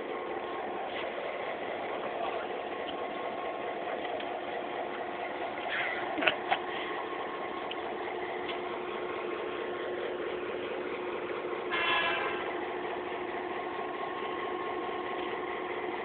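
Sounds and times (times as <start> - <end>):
locomotive engine running: 0.0 - 16.0
locomotive horn toot: 11.7 - 12.6.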